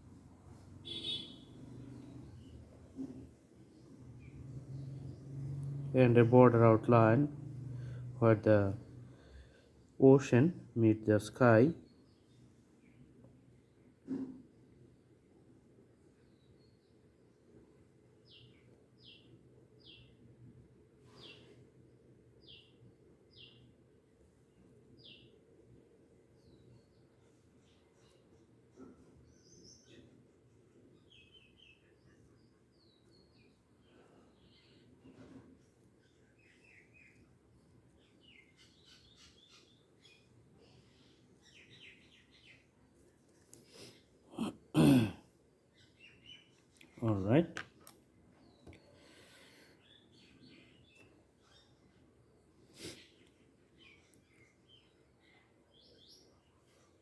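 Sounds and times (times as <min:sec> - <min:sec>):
faint low hum: 0:00.0 - 0:11.9
faint bird chirps: 0:00.8 - 0:02.6, 0:30.9 - 0:42.7, 0:48.4 - 0:57.0.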